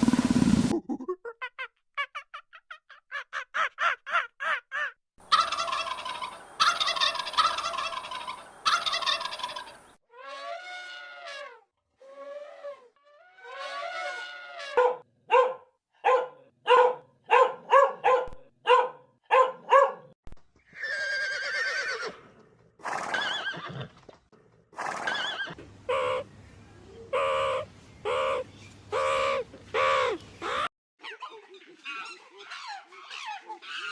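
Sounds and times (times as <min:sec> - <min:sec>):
animal calls: 0:05.3 - 0:10.9, 0:24.8 - 0:26.3, 0:27.0 - 0:33.9.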